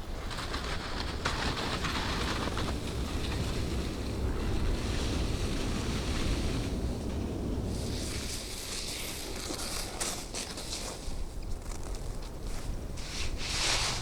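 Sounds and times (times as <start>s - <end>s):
wind buffeting microphone: 0.0s - 9.6s
blizzard wind blowing: 0.0s - 14.0s.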